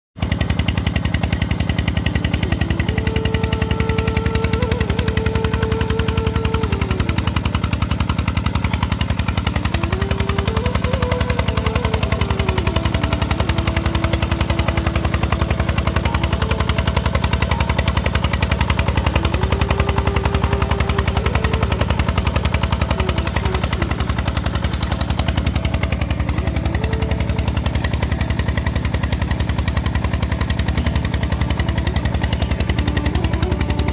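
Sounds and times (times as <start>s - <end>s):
diesel engine knocking: 0.2s - 33.9s.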